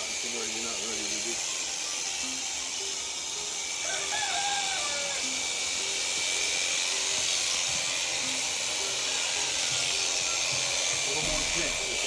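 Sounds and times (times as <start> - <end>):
electric sheep shears buzzing: 0.0 - 12.0.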